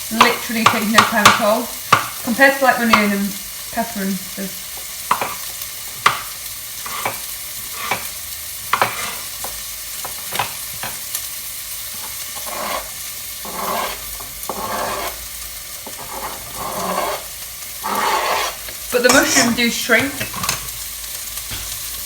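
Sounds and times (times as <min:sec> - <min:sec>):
vegetables sizzling in a pan: 0:00.0 - 0:22.0
utensil scraping a pan: 0:06.8 - 0:08.1, 0:08.7 - 0:11.0, 0:11.9 - 0:20.8.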